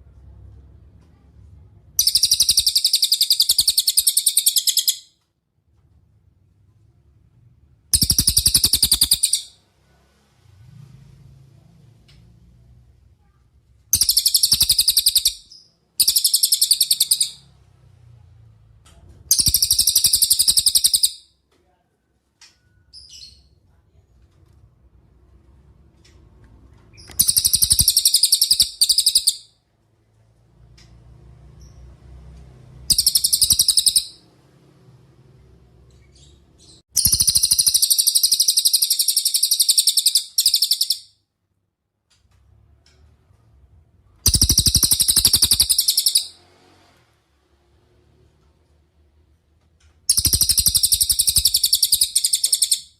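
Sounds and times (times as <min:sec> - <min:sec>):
songbird high-pitched trills: 0:02.0 - 0:05.1, 0:27.2 - 0:29.4, 0:32.9 - 0:34.2, 0:37.0 - 0:41.1, 0:44.3 - 0:46.4, 0:50.1 - 0:52.9.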